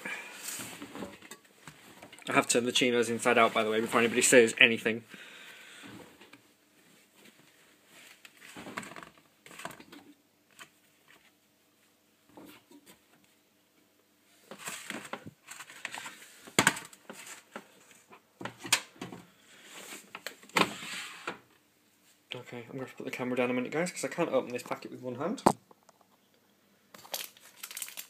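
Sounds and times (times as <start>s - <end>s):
hands rustling and crinkling: 27.0s - 28.0s.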